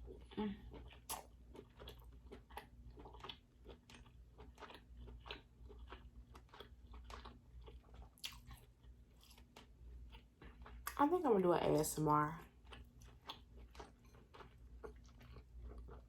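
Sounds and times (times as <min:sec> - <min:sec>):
mouth chewing wet clicks: 0:00.2 - 0:11.0.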